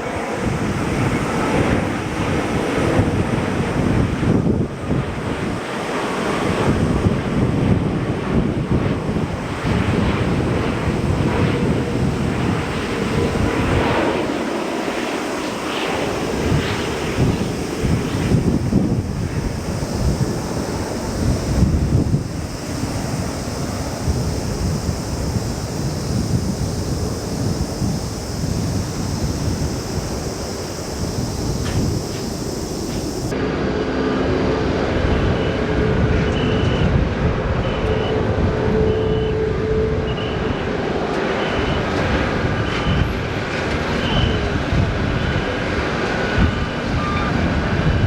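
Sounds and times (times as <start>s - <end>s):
jet engines rumbling: 0.0s - 48.0s
wind buffeting microphone: 0.0s - 48.0s
faint steady whine: 9.2s - 33.4s.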